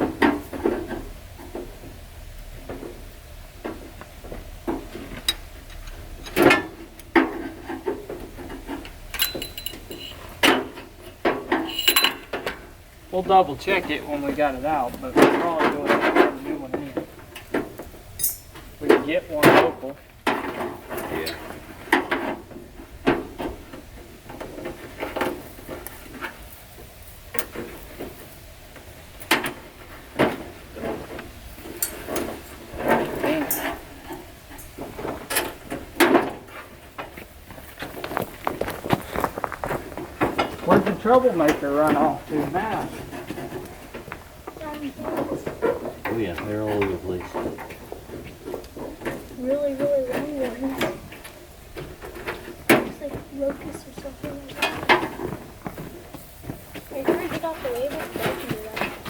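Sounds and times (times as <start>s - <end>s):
hand tools clanking on metal: 4.7s - 26.4s, 28.8s - 38.1s, 38.8s - 56.2s
hand tools clinking on metal: 8.7s - 10.8s, 11.4s - 12.6s, 18.2s - 19.7s, 31.7s - 36.2s.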